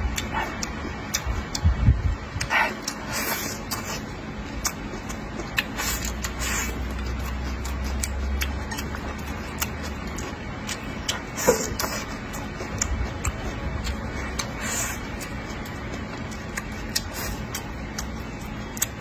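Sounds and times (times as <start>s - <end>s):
man chewing: 0.0s - 19.0s.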